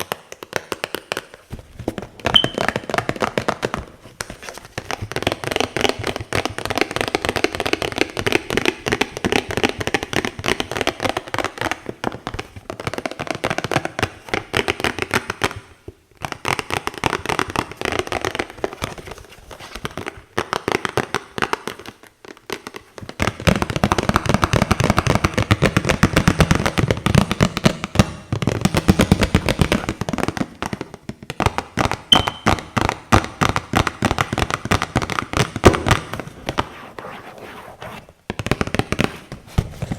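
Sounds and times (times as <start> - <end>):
tapping and scratching on boxes: 28.6 - 39.9.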